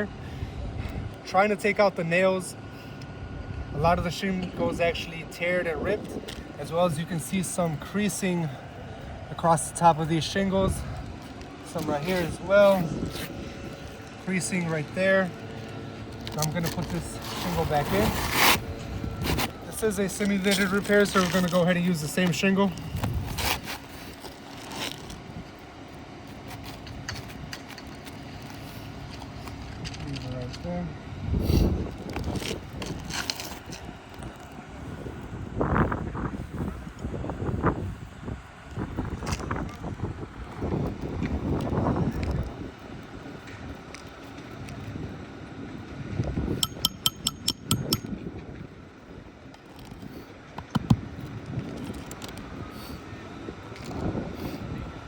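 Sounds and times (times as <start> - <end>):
wind noise on microphone: 0.2 - 1.2, 17.2 - 20.0, 22.8 - 24.2, 31.2 - 43.6, 46.0 - 55.0
roof shingle scraping: 16.3 - 21.8, 22.9 - 25.3
hammer striking nail: 46.6 - 48.0.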